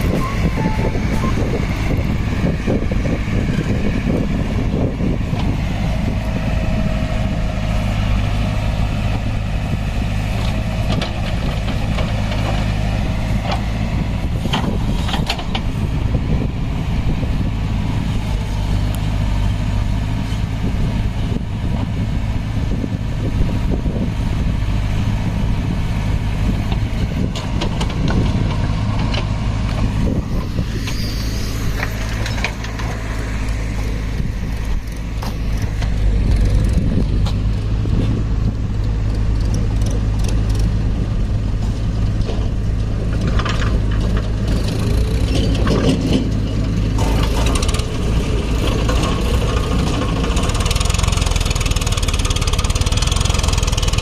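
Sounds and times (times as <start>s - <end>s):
diesel machinery running: 0.0s - 54.0s.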